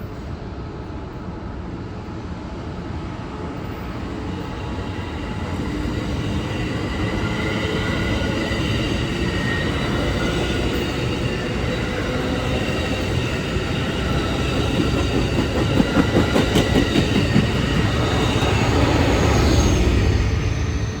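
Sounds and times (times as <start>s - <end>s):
train wheels rumbling on rail: 0.1s - 21.0s
rhythmic clacks over rail joints: 9.9s - 19.8s.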